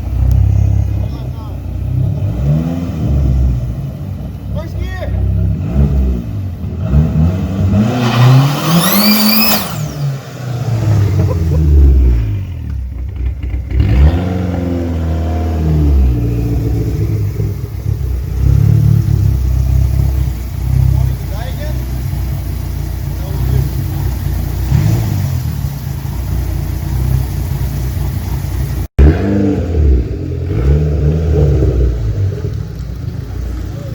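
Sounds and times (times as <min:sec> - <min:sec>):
car engine revving hard: 0:01.9 - 0:04.0, 0:05.2 - 0:12.6, 0:13.4 - 0:22.4, 0:23.1 - 0:32.6
turbo whistle: 0:08.7 - 0:10.0.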